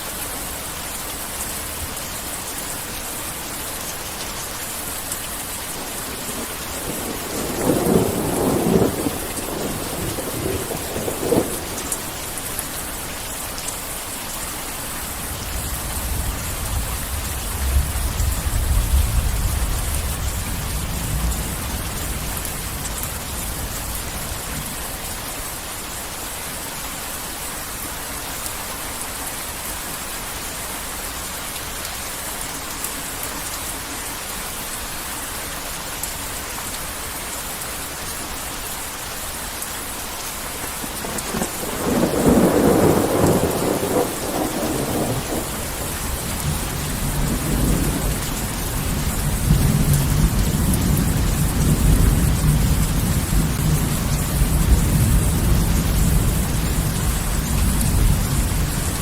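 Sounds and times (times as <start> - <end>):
heavy rain: 0.0 - 59.0
deep thunder rumble: 6.3 - 11.8, 41.0 - 59.0
thunder cracking: 41.0 - 48.1.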